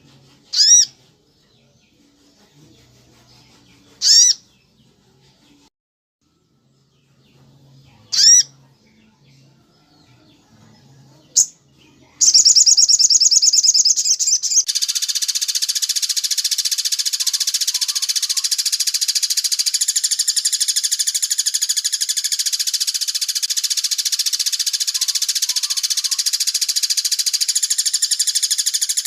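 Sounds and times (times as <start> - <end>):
bird chirps: 0.0 - 5.7, 6.3 - 29.0
fast high bird trill: 0.5 - 1.0, 4.0 - 4.4, 8.1 - 8.5, 12.2 - 29.0.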